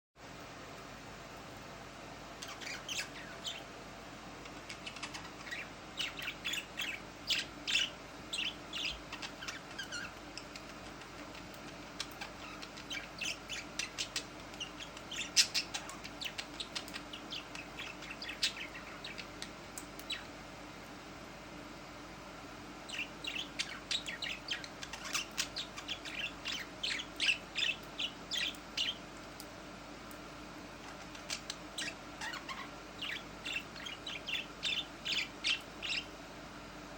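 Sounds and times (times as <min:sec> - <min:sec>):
parrots chirping: 0:02.4 - 0:03.8, 0:04.4 - 0:20.3, 0:22.9 - 0:29.1, 0:30.8 - 0:36.2.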